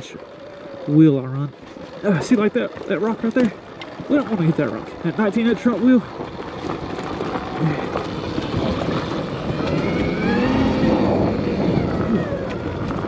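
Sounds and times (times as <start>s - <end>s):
tyre and trail rumble: 0.0s - 13.0s
electric motor whining: 6.4s - 13.0s.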